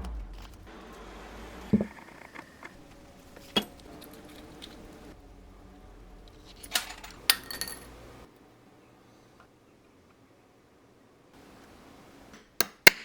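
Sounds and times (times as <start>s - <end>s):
low background hum: 0.0s - 12.4s
metal watch parts clinking: 6.3s - 8.3s.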